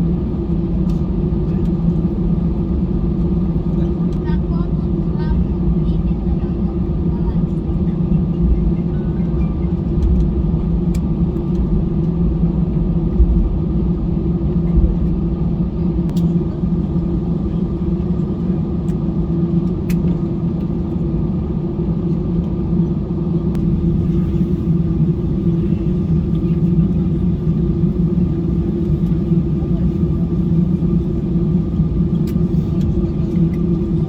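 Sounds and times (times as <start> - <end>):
vehicle engine rumble: 0.1 - 34.0.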